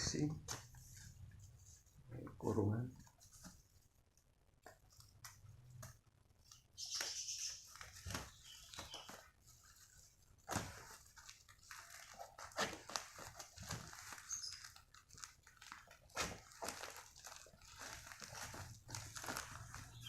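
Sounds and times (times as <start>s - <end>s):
packaging tearing and crinkling: 10.4s - 20.0s.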